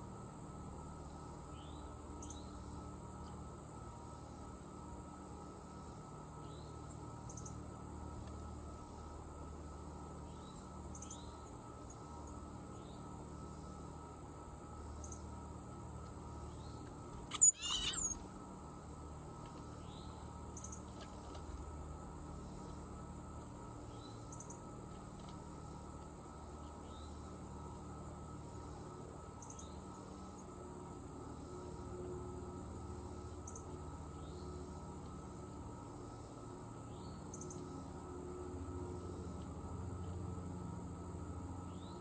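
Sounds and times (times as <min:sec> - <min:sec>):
faint short bird chirps: 0:17.2 - 0:18.3
high-pitched insect drone: 0:17.3 - 0:18.2
loud short bird call: 0:17.3 - 0:18.2.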